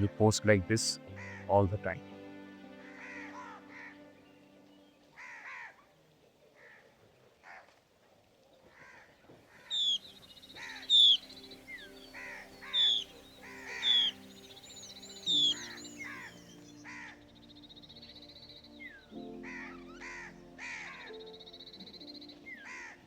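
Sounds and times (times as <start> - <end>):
soft background music: 0.0 - 6.7, 9.6 - 23.0
harsh bird calls: 9.6 - 23.0
high-pitched descending bird notes: 10.8 - 12.0.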